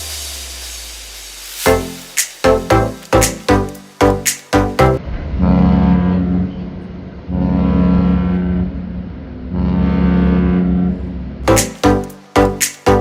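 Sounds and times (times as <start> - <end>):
ship's horn blasts: 5.1 - 11.3.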